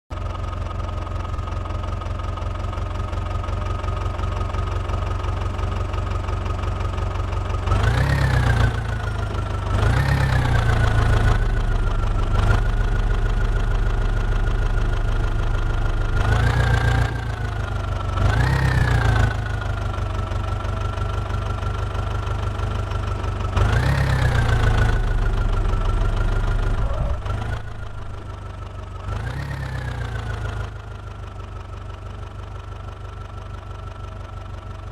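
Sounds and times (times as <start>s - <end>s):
diesel engine revving with whine: 7.5s - 32.7s.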